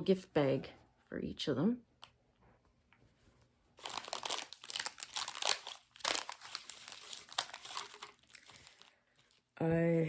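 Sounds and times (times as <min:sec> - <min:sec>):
plastic packaging crinkling: 0:03.8 - 0:09.5.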